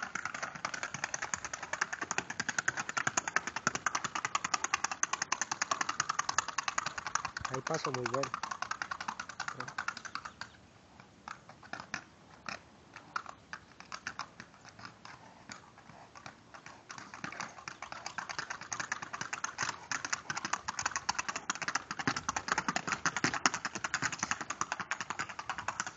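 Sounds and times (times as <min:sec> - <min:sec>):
campfire crackling and popping: 0:00.0 - 0:10.3.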